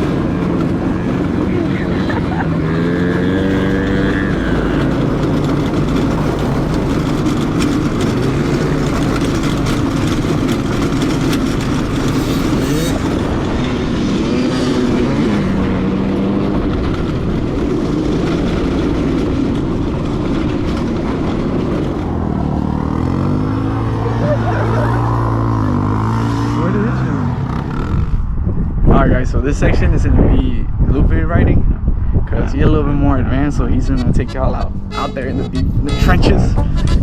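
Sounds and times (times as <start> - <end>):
small engine revving: 0.0 - 28.2.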